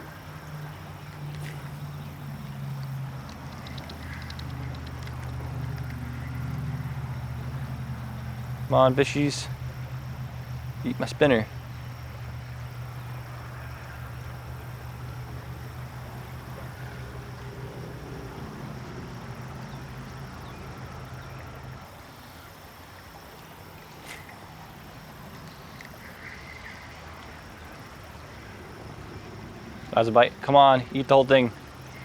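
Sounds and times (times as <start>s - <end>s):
low motor hum: 0.0s - 21.9s
shallow creek water running: 0.0s - 32.0s.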